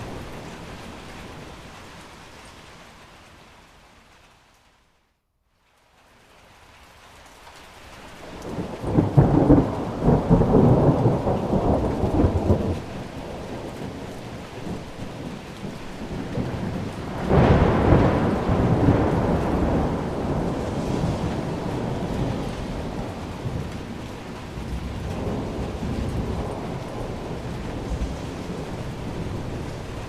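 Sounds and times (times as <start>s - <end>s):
steady rain: 0.0s - 30.0s
thunder rolling: 8.3s - 30.0s.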